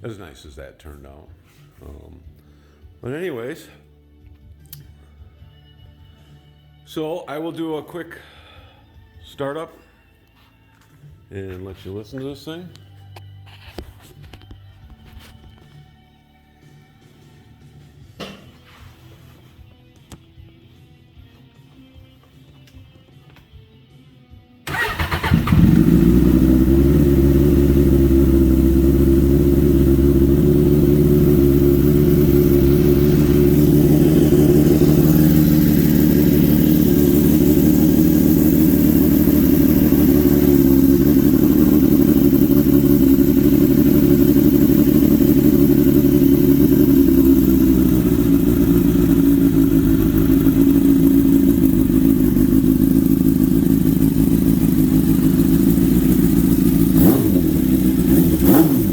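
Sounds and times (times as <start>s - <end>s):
motorcycle engine starting and idling: 24.6s - 58.9s.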